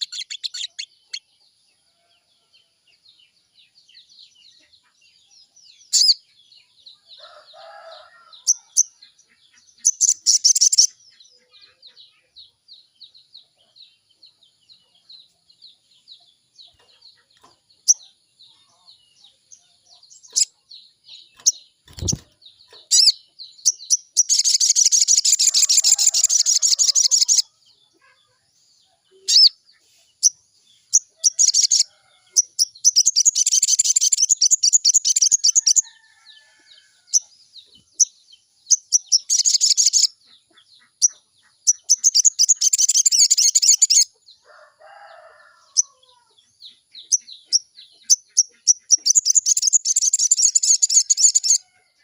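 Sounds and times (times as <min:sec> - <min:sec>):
bird warbling song: 0:00.0 - 0:52.0
single bird chirps: 0:21.3 - 0:27.4.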